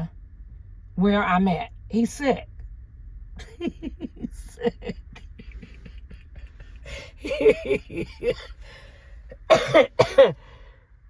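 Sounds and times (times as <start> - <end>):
steady low rumble: 0.0 - 11.0
indistinct voices: 1.0 - 2.4, 3.4 - 10.4.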